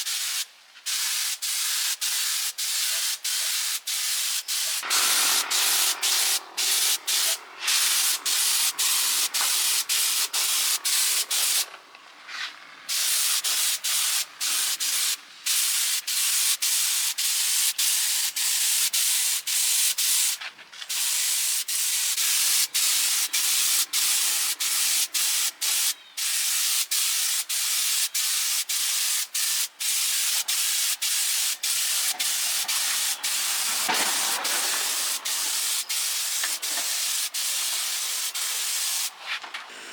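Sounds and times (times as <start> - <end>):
hissing abrasive workshop noise: 4.6 - 11.8, 32.0 - 39.9.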